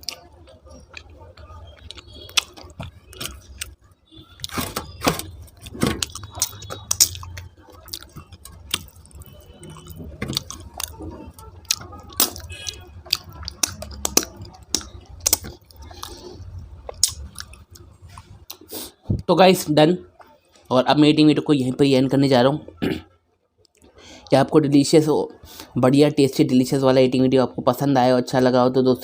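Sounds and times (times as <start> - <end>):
chewing: 0.0 - 19.0.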